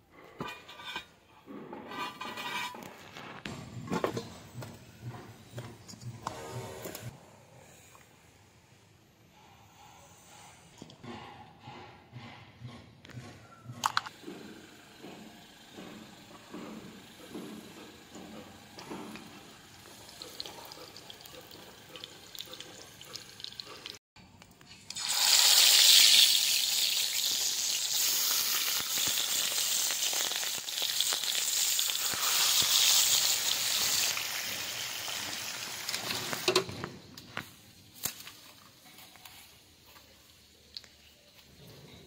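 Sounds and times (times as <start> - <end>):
food sizzling in hot oil: 19.5 - 24.0, 24.9 - 36.7.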